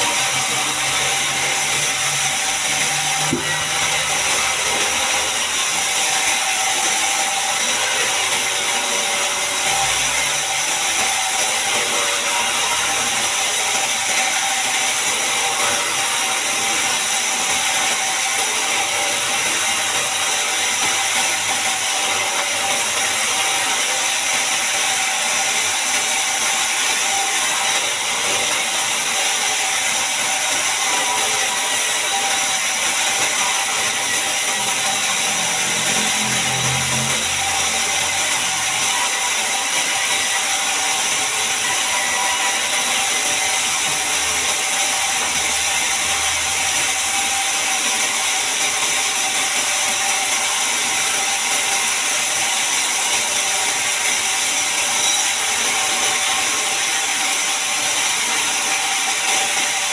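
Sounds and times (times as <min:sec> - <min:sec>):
band saw high-pitched hiss: 0:54.0 - 0:56.8.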